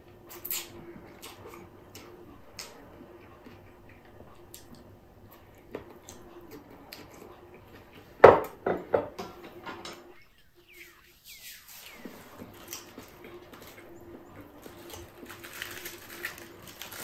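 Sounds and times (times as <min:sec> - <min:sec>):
faint steady hum: 0:00.0 - 0:17.0
soft wet chewing: 0:00.2 - 0:08.2.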